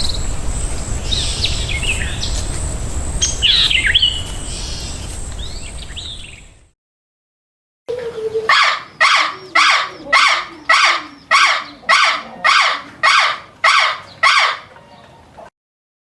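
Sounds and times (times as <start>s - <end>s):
harsh animal call: 7.9s - 15.3s.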